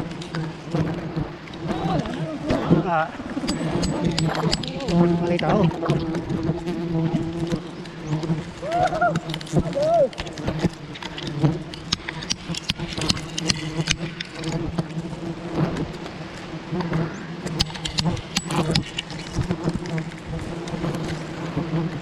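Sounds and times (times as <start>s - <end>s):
bees buzzing: 0.0s - 22.0s
clicks and knocks: 3.4s - 5.0s.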